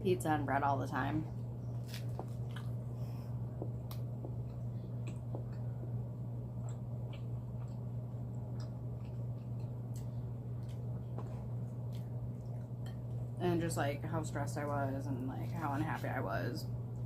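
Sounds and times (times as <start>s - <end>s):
low electrical hum: 0.0s - 17.0s
person chewing food: 1.7s - 13.3s.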